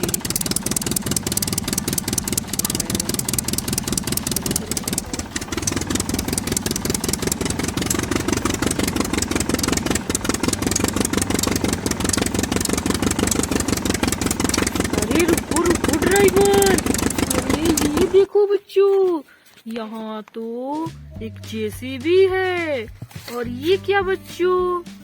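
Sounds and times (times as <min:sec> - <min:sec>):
small motor running with fast chatter: 0:00.0 - 0:18.3.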